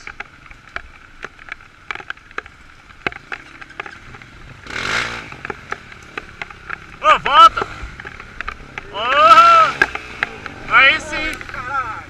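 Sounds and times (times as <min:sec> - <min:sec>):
light clicks and knocks: 0:00.0 - 0:08.9
motorcycle engine running: 0:00.0 - 0:12.0.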